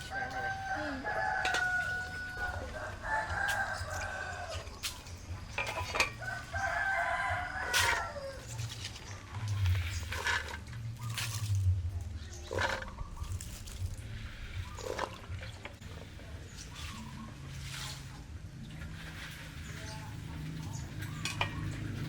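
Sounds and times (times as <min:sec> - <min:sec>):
rooster crowing: 0:00.0 - 0:04.8, 0:06.2 - 0:08.6.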